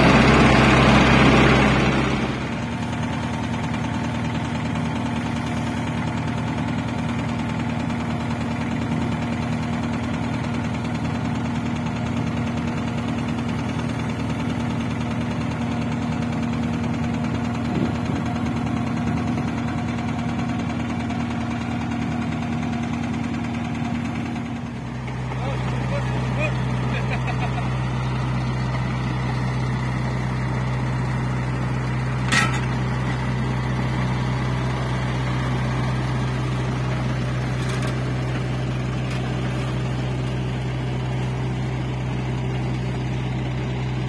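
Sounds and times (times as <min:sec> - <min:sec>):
diesel engine running steadily: 0:00.0 - 0:44.0.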